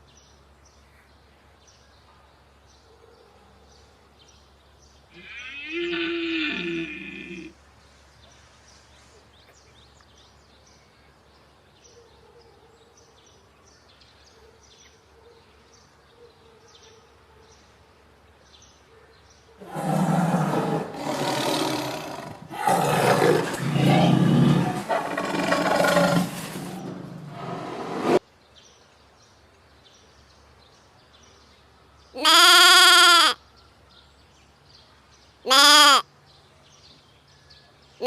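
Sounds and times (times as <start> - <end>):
large animal roaring: 19.6 - 28.2.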